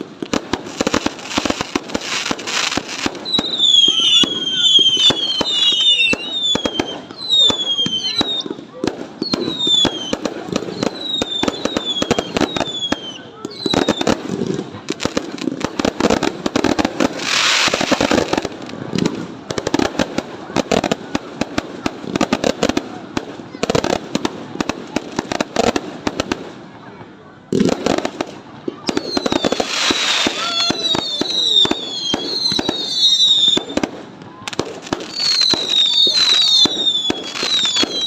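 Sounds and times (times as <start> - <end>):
fireworks bangs and crackles: 0.0 - 38.0
falling firework whistles: 0.3 - 14.5, 28.7 - 38.0.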